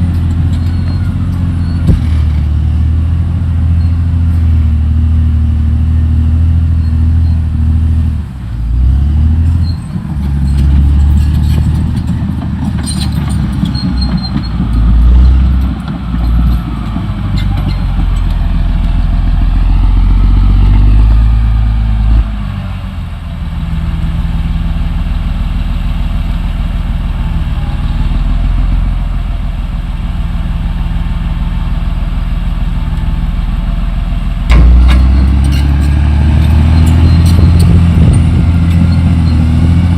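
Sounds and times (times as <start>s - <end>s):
bulldozer diesel engine working: 0.0s - 39.9s
metal clanks: 9.5s - 18.9s, 34.5s - 39.5s.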